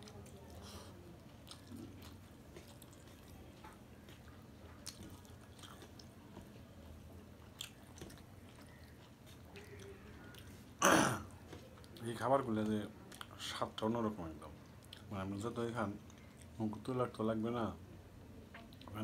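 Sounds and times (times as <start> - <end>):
chewing food: 0.0 - 17.2, 18.4 - 19.0
low steady hum: 0.0 - 19.0.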